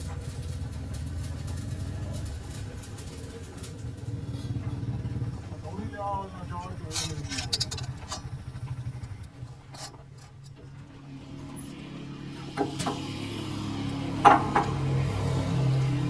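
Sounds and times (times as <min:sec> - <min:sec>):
sharp metallic clinks: 0:06.6 - 0:09.2.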